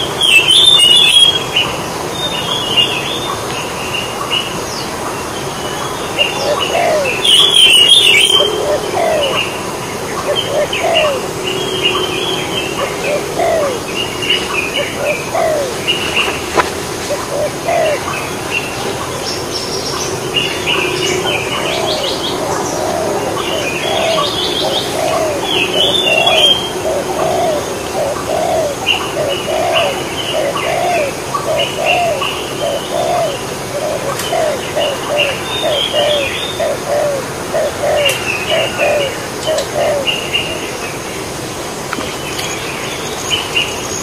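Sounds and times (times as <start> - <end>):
higher bird chirps: 5.8 - 16.4.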